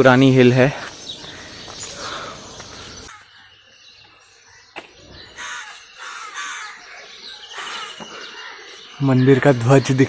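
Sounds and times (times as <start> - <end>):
crows cawing: 0.8 - 3.7, 4.5 - 9.5.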